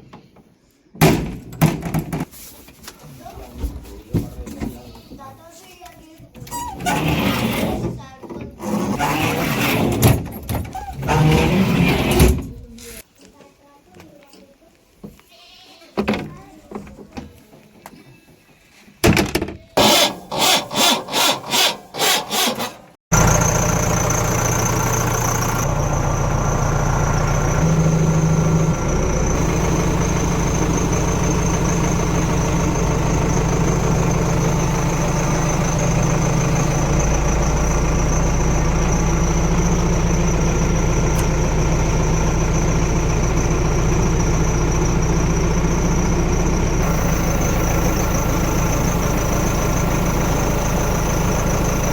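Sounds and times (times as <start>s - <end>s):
diesel engine running: 10.7s - 13.0s, 23.1s - 51.9s.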